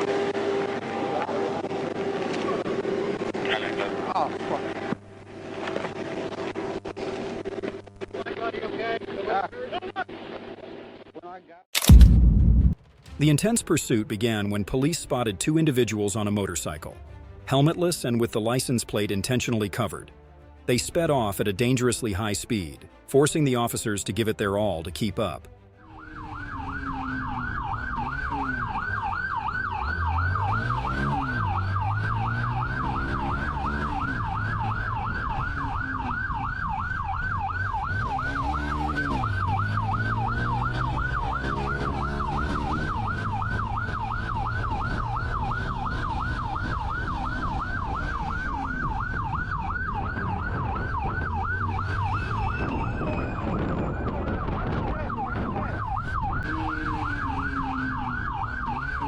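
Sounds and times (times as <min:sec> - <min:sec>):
car engine revving: 0:25.8 - 0:55.5, 0:56.2 - 0:59.0
police siren yelping: 0:25.8 - 0:59.0.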